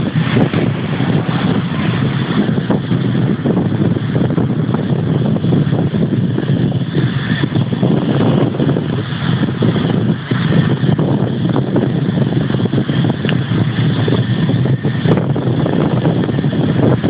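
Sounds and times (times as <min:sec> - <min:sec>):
jet engines roaring: 0:00.0 - 0:17.0
wind buffeting microphone: 0:00.0 - 0:17.0.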